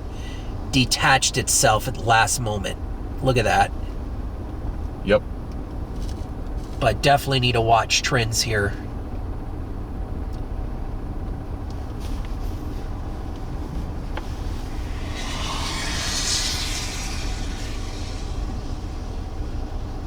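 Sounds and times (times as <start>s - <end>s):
vehicle engine rumble: 0.0s - 20.0s
hiss: 11.8s - 20.0s.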